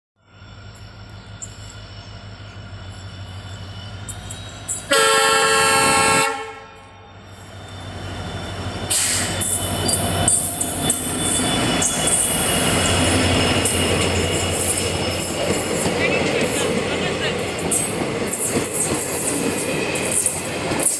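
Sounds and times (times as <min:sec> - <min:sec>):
diesel locomotive engine rumble: 0:00.2 - 0:20.9
train horn blast: 0:04.9 - 0:07.0
coaches rolling with wheel clatter: 0:07.3 - 0:20.9.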